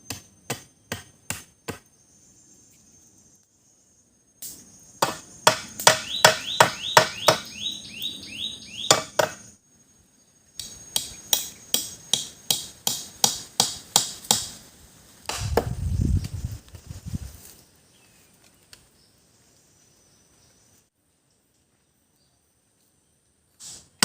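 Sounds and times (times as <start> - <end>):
machete chopping wood: 0.0 - 1.8, 5.0 - 7.5, 8.9 - 9.4, 10.6 - 14.6, 15.3 - 15.8.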